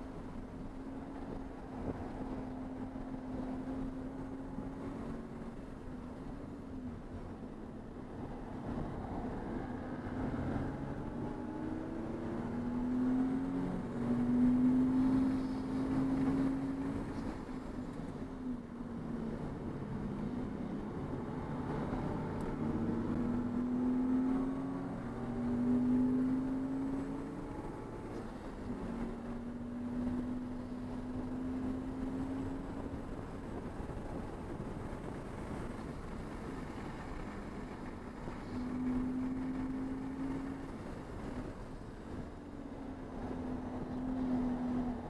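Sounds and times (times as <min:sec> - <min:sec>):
road and wind noise: 0:00.0 - 0:45.0
racing car engine accelerating: 0:19.9 - 0:41.5.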